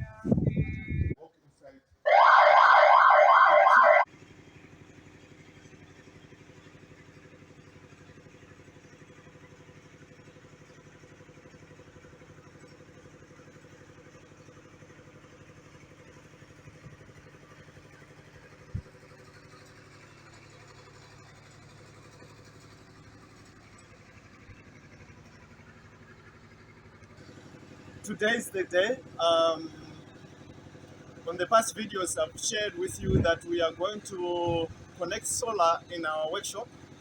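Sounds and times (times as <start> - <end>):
diesel generator humming: 0.0 - 37.0
siren-like warbling tone: 2.1 - 4.0.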